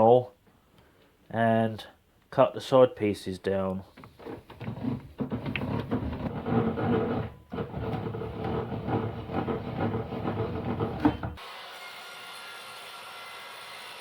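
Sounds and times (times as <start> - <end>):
saw cutting wood: 4.7 - 14.0.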